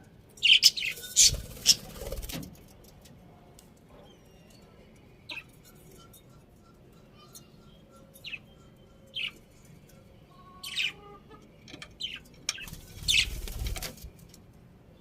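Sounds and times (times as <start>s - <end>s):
budgerigars chirping: 0.4s - 1.8s
wing flapping: 1.2s - 2.6s, 12.6s - 14.2s.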